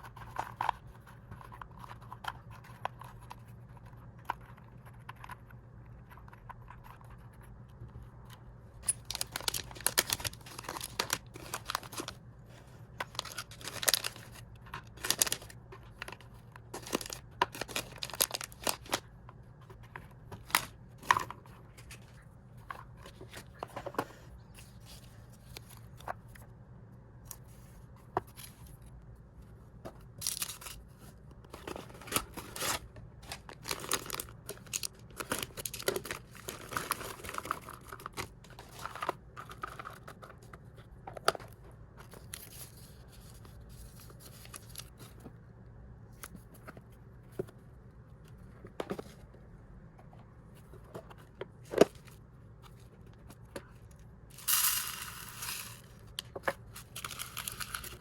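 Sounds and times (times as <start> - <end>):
plastic packaging rustling and tearing: 8.9 - 12.2, 13.0 - 19.1, 30.2 - 40.3, 55.6 - 58.0.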